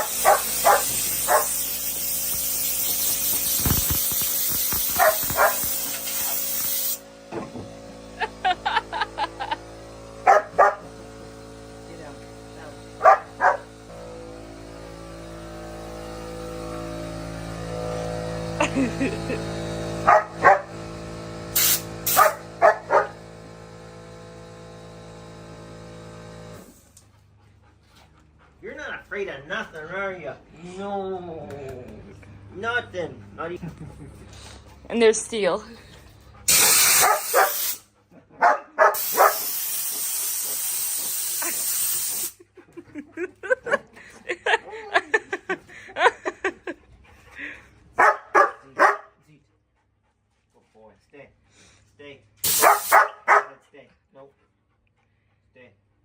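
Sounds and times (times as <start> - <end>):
dog barking: 0.0 - 1.6, 4.9 - 5.8, 10.3 - 10.9, 13.0 - 13.7, 20.0 - 20.7, 22.1 - 23.2, 36.5 - 37.8, 38.4 - 41.1, 48.0 - 49.2, 52.5 - 53.6
air blow gun hissing: 0.0 - 7.1, 21.5 - 22.4, 36.5 - 37.9, 39.0 - 42.4, 52.4 - 53.0
air compressor pulsing hum: 0.0 - 27.3, 32.4 - 38.0, 38.8 - 42.5, 52.4 - 53.3.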